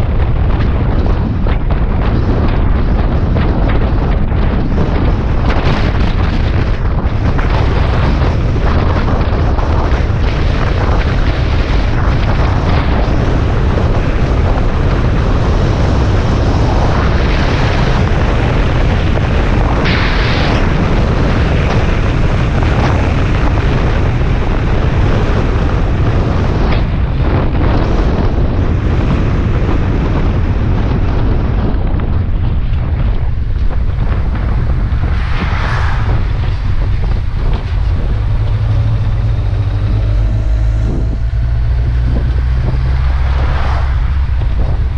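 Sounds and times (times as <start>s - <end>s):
wind rushing over microphone: 0.0s - 44.9s
motorcycle engine running steadily: 36.6s - 44.9s.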